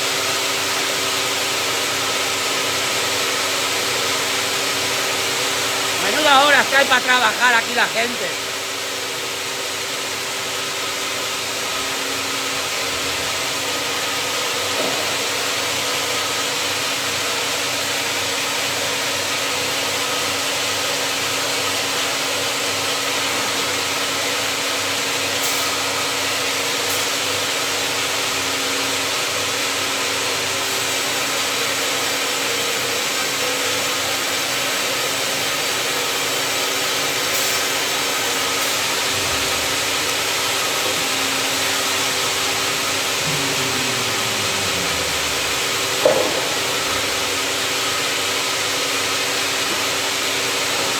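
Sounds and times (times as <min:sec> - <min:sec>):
machine engine humming: 0:39.0 - 0:48.4.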